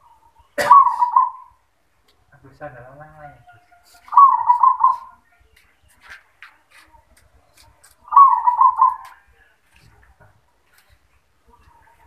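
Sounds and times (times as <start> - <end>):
dove bubbling coos: 0.0 - 1.6.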